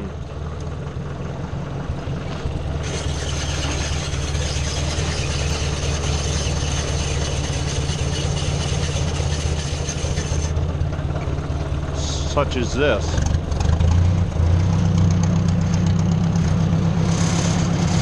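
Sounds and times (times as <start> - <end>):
tractor engine running: 0.0 - 18.0
hiss with whistling tone: 2.8 - 10.5.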